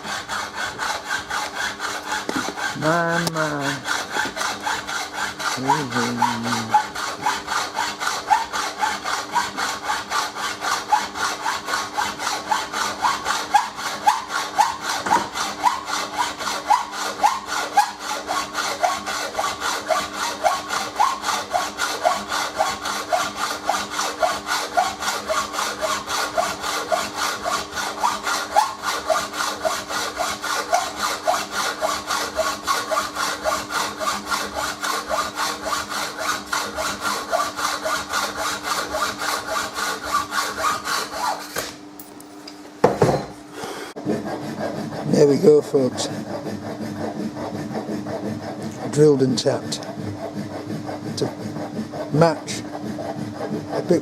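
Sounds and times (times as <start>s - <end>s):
steady hum: 0.0s - 10.6s
saw cutting: 0.0s - 42.0s, 42.8s - 54.0s.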